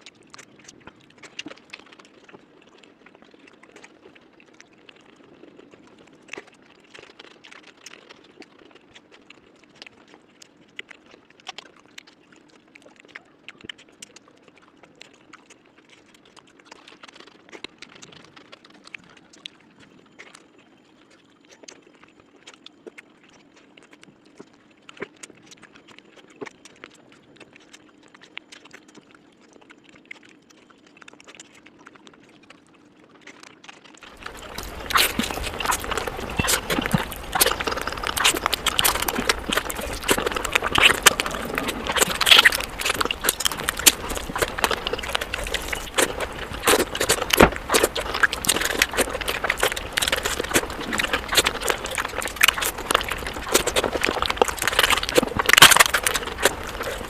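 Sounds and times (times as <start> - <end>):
wet chewing and crunching: 0.0 - 57.0
mouth clicks: 34.0 - 57.0.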